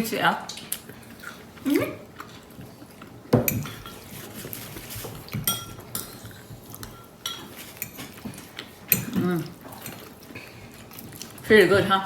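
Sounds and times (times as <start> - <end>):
cutlery clinking against dishes: 3.4 - 4.1, 5.3 - 10.0.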